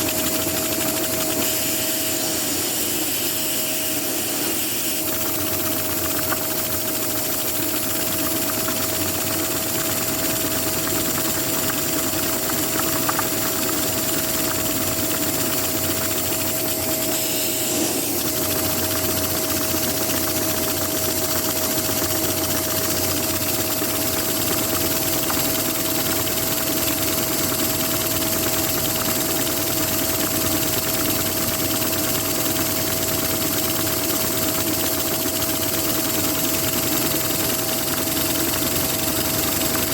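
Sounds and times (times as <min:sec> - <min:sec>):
vacuum cleaner whine: 0:00.0 - 0:26.7.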